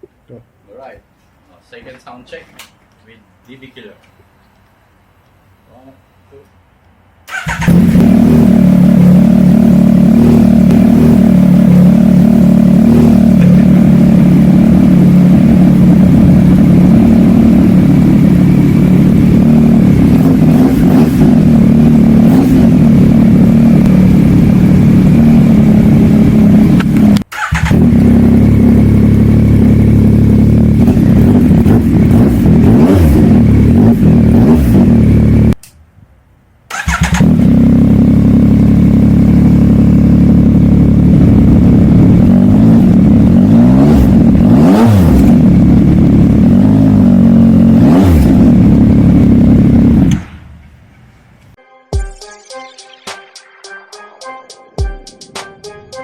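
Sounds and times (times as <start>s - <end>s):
motorcycle engine running loud: 7.7s - 35.5s, 37.2s - 50.2s.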